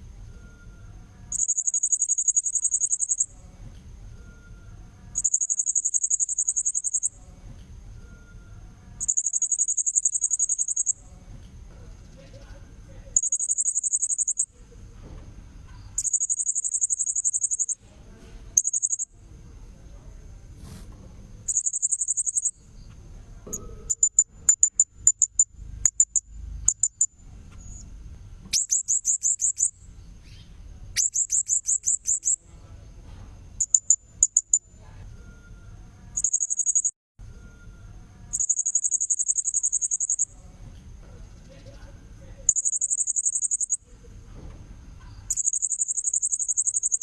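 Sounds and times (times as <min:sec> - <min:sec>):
sharp bird chirps: 0:01.3 - 0:03.3, 0:05.2 - 0:07.1, 0:09.0 - 0:11.0, 0:13.2 - 0:14.5, 0:15.9 - 0:17.8, 0:18.6 - 0:19.1, 0:21.5 - 0:22.6, 0:28.5 - 0:32.4, 0:36.2 - 0:37.0, 0:38.3 - 0:40.3, 0:42.5 - 0:43.8, 0:45.3 - 0:47.0.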